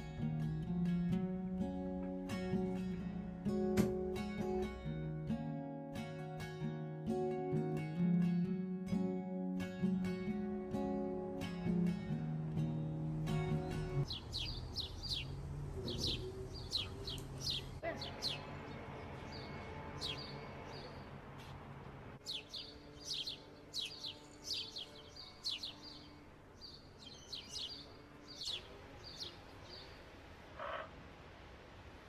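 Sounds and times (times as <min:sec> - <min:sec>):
small birds chirping: 0:13.5 - 0:21.2, 0:22.2 - 0:30.9.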